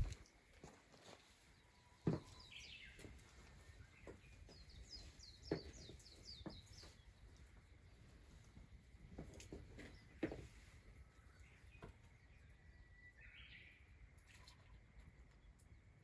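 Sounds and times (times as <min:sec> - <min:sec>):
small bird chirping: 0:01.5 - 0:08.4.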